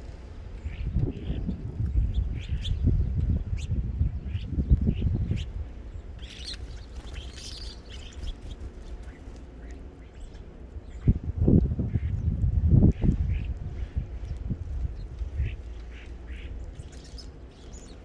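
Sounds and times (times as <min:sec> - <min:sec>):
low rumble: 0:00.0 - 0:18.0
small birds chirping: 0:00.4 - 0:18.0.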